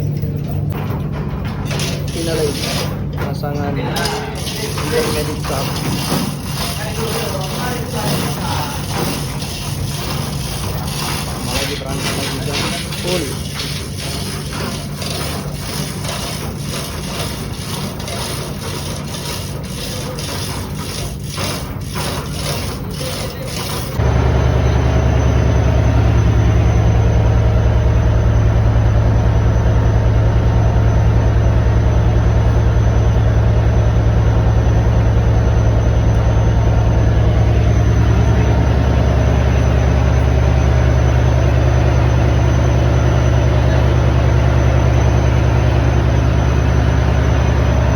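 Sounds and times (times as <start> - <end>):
clatter of knocks and rubbing: 0.0 - 24.0
engine-room machinery humming: 0.0 - 47.9.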